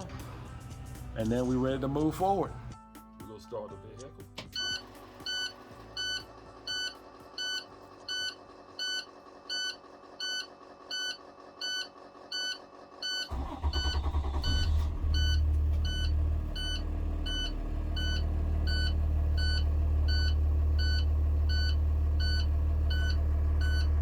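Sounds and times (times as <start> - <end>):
diesel truck engine idling: 5.0 - 24.0.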